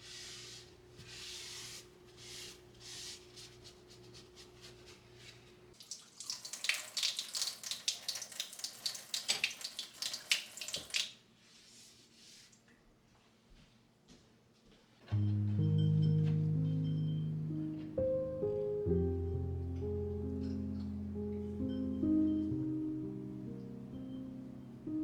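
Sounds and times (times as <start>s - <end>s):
water running into sink: 5.8s - 11.2s.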